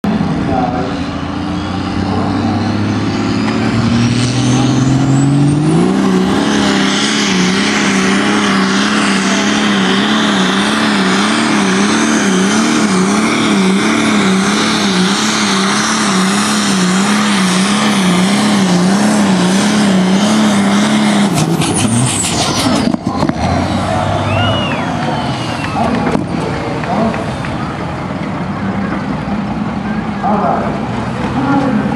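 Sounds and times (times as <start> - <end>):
pulling vehicle engine revving: 0.0 - 31.9
rising whistle: 23.7 - 26.0.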